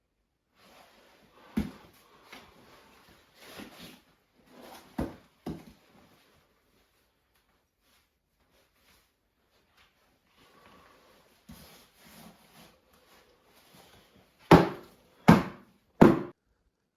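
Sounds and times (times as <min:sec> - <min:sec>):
dull knocks and thumps: 0:14.5 - 0:16.3.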